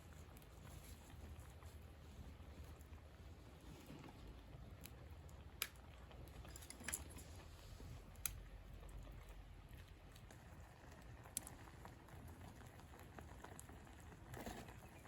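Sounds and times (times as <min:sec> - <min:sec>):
campfire crackling and popping: 0:04.5 - 0:06.5, 0:08.0 - 0:14.7.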